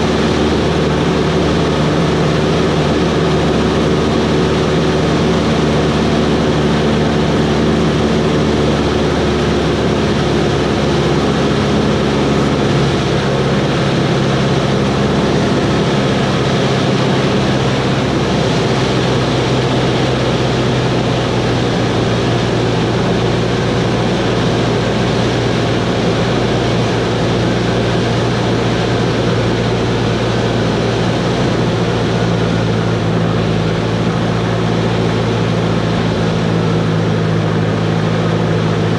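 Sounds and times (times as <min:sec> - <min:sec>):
light aircraft engine droning: 0:00.0 - 0:38.9.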